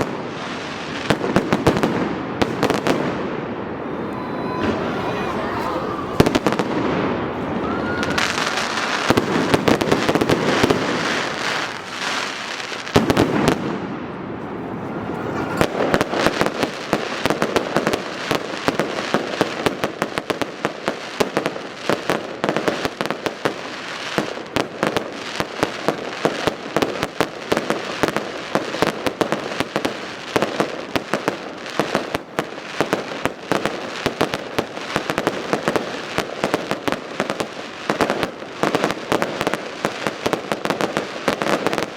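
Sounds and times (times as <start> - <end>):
firework bursts: 0.0 - 41.9
firework whistles: 3.6 - 12.8, 14.8 - 17.4.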